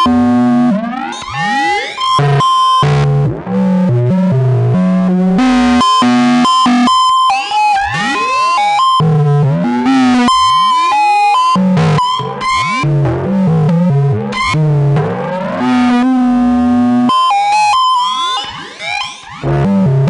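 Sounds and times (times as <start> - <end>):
synthesizer bass notes: 0.0 - 1.0, 2.2 - 6.9, 9.0 - 10.6, 11.4 - 17.1, 19.4 - 20.0.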